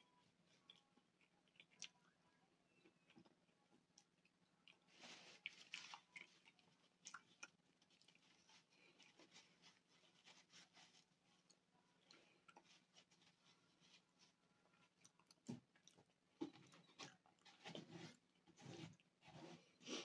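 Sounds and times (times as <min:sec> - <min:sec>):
chewing with wet mouth clicks: 0:00.4 - 0:02.2, 0:02.8 - 0:09.2, 0:14.6 - 0:17.4.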